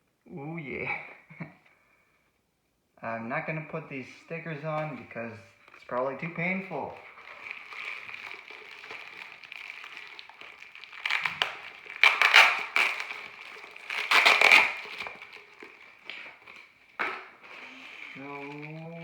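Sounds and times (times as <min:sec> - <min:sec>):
plastic packaging crinkling: 0:04.4 - 0:19.0.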